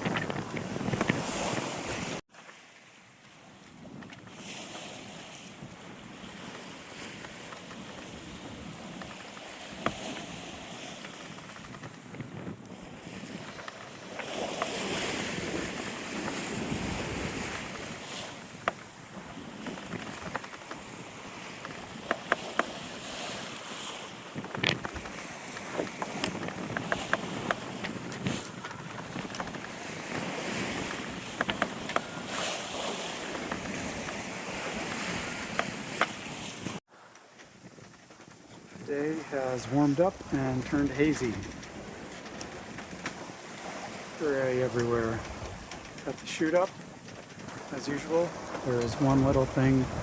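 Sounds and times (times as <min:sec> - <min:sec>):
wind on microphone: 0:00.0 - 0:02.2, 0:03.6 - 0:36.8, 0:37.4 - 0:50.0
water splashing along hull: 0:00.0 - 0:50.0
sharp clicks and knocks: 0:40.2 - 0:43.3.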